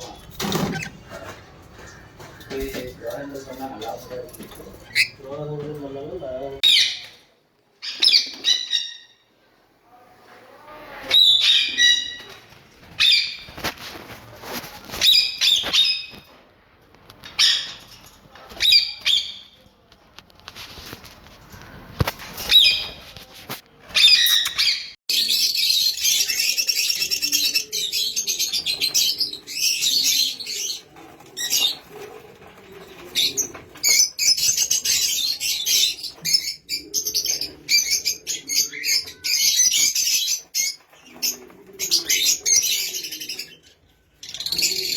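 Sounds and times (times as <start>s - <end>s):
parrots chirping: 4.7s - 5.2s, 7.8s - 9.3s.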